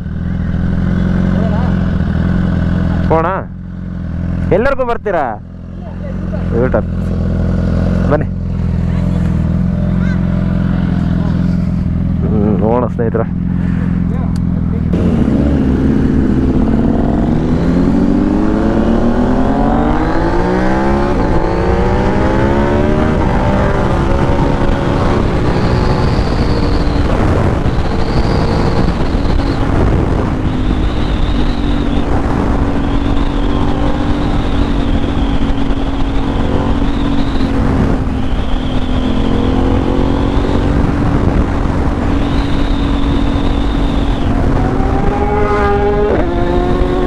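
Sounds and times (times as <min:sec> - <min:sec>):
motorcycle engine cruising: 0:00.0 - 0:47.0
wind rush on microphone: 0:14.9 - 0:47.0.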